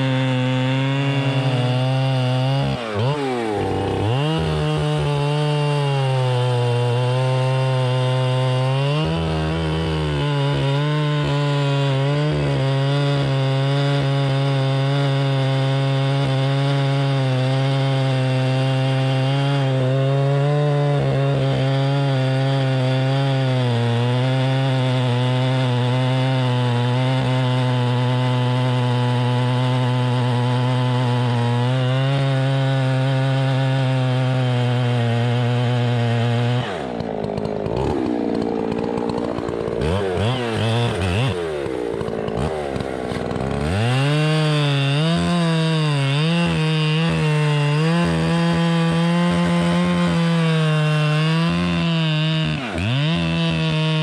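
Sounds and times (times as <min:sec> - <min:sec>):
engine running at high revs: 0:00.0 - 0:17.0, 0:35.3 - 0:54.0.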